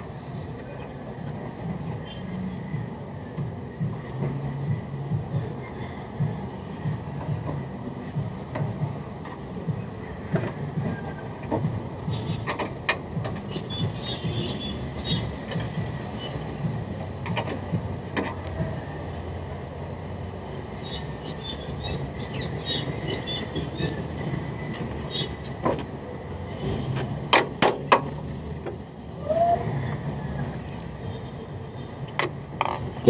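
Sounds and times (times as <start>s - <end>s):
metallic clicks and knocks: 12.4s - 16.2s.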